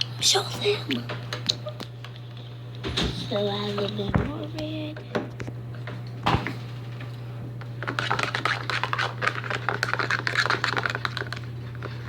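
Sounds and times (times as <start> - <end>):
steady low hum: 0.0 - 12.0
fork squishing and scraping slime: 7.8 - 12.0.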